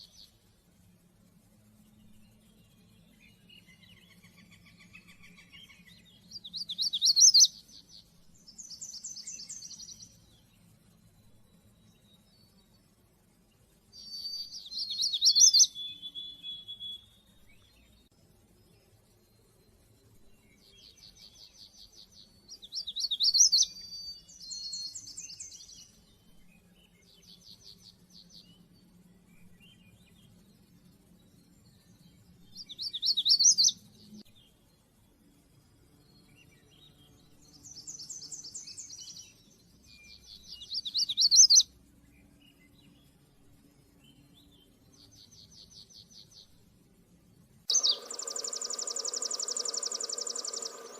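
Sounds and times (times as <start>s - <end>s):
songbird trilling: 6.4s - 7.6s, 14.0s - 17.0s, 22.7s - 23.8s, 32.7s - 33.7s, 40.5s - 41.6s, 47.7s - 50.9s.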